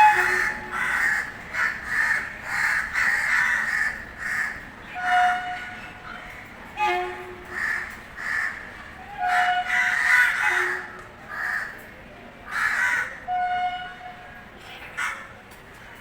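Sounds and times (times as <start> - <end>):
crows cawing: 0.3 - 4.6, 7.5 - 8.7, 9.3 - 11.8, 12.5 - 13.2.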